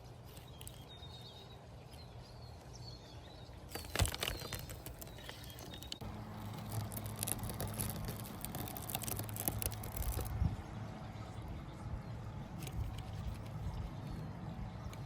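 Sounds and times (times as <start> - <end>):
steady low hum: 0.0 - 15.0
toy parts clicking and rattling: 3.7 - 10.3.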